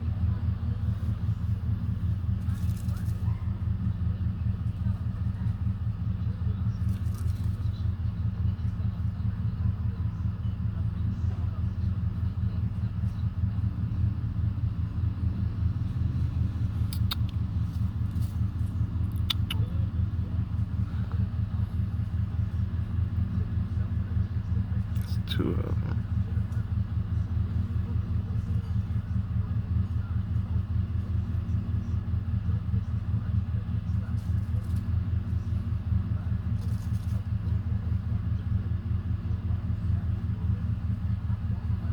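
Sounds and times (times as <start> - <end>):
vehicle engine rumbling: 0.0 - 41.9.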